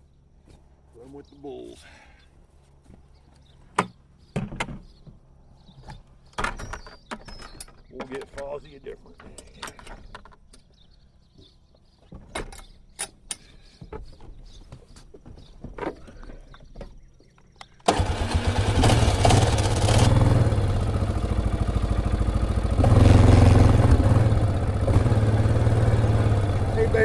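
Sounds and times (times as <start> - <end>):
light clicks and knocks: 3.7 - 10.8
vehicle engine starting and running: 17.8 - 27.0.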